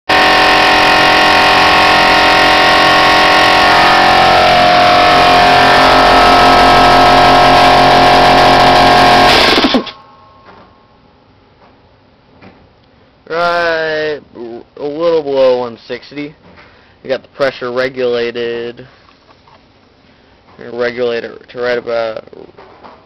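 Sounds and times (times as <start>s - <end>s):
air compressor running: 0.1s - 10.0s
compressor spinning down whine: 0.1s - 10.0s.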